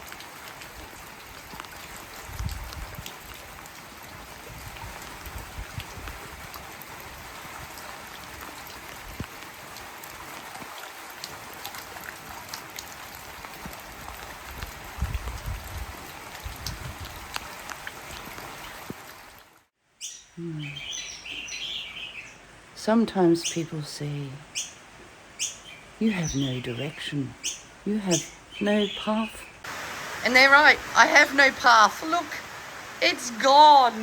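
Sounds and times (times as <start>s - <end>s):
heavy rain falling: 29.6s - 34.0s.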